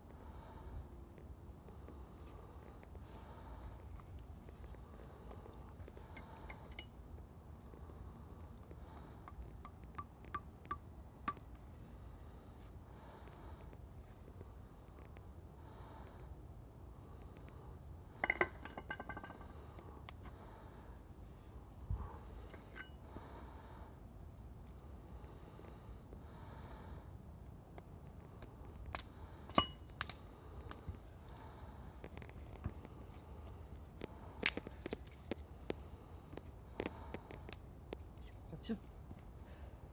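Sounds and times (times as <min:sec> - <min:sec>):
campfire crackling: 0:24.5 - 0:38.2.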